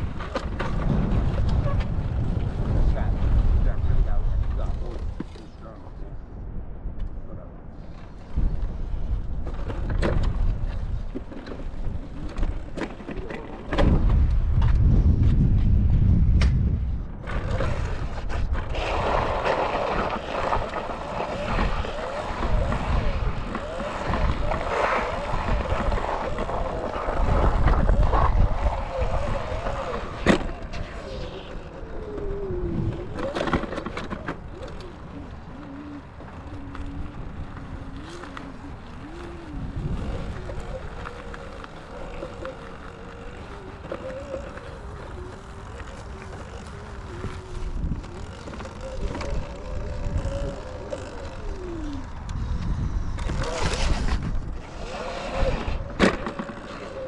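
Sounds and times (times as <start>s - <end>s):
wind buffeting microphone: 0.0s - 57.0s
dirt bike engine revving: 18.7s - 31.8s, 32.9s - 57.0s.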